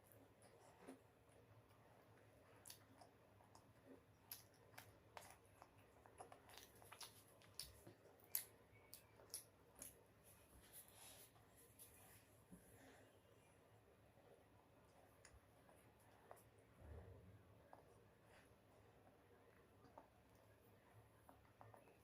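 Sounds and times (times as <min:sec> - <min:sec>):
chewing with wet mouth clicks: 0:00.1 - 0:10.3, 0:14.8 - 0:16.6, 0:19.0 - 0:22.0.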